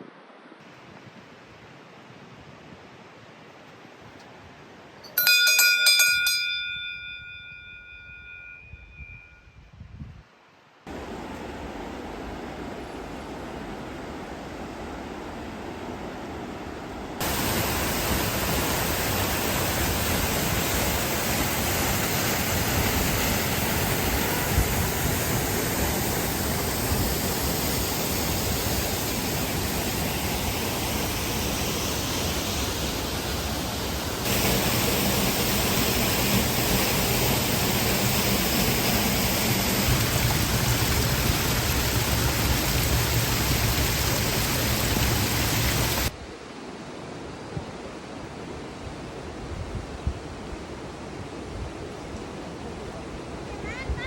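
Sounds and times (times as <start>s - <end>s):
fast-flowing water rushing: 10.9s - 46.2s.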